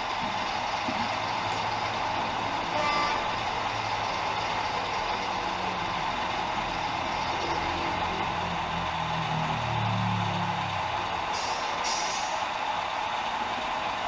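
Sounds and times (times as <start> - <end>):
model locomotive engine sound: 0.0 - 14.0.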